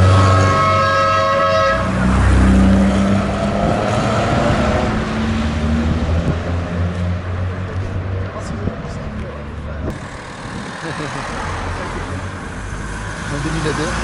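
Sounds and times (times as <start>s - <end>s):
car horn: 0.0s - 2.6s
rally car engine running: 9.8s - 12.5s.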